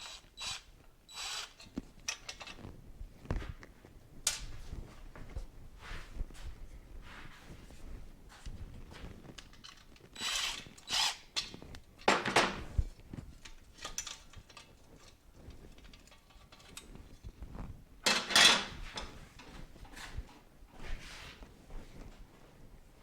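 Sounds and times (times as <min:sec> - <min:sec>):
metal tools clanking and rattling: 0:13.4 - 0:16.9, 0:18.0 - 0:19.1.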